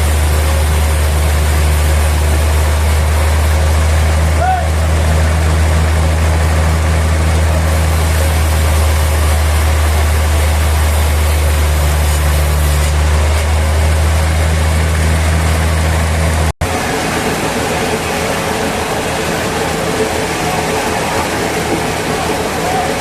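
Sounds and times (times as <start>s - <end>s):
machinery hiss: 0.0s - 15.4s
sawmill machinery hum: 0.0s - 23.0s.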